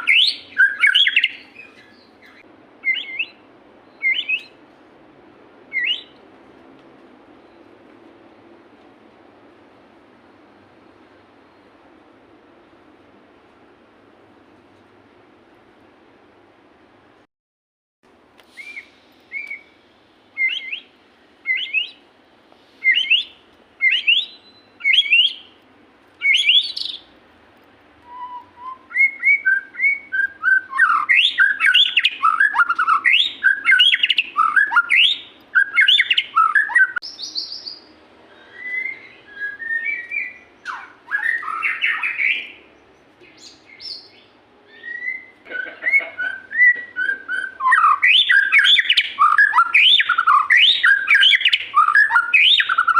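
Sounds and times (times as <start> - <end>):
songbird whistling: 0.0 - 4.6, 5.7 - 6.2, 18.5 - 22.0, 22.7 - 25.6, 26.2 - 27.1, 28.0 - 52.9.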